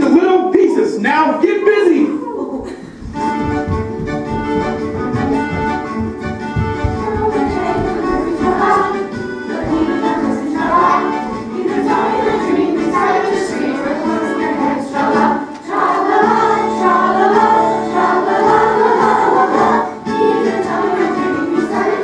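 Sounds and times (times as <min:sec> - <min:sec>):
instrumental accompaniment: 0:02.8 - 0:22.0
choir singing: 0:06.6 - 0:22.0.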